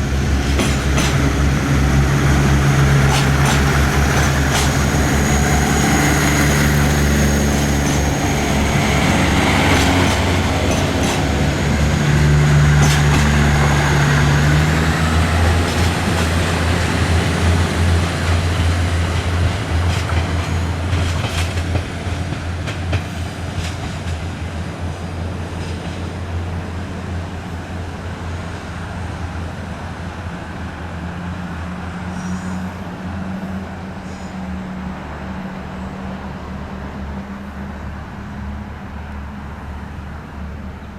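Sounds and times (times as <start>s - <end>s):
low steady train running tone: 0.0s - 40.9s
train wheels clicking over rail joints: 0.2s - 24.5s.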